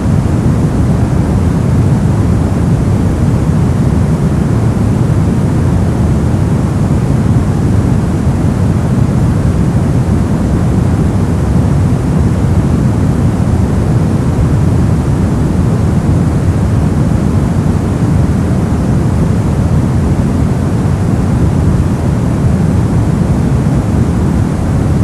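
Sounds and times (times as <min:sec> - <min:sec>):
brown noise hiss: 0:00.0 - 0:25.0.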